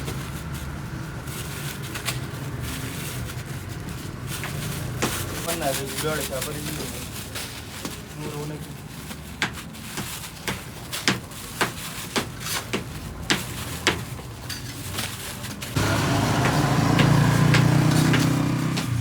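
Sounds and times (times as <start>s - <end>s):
sharp knocks: 16.3s - 19.0s.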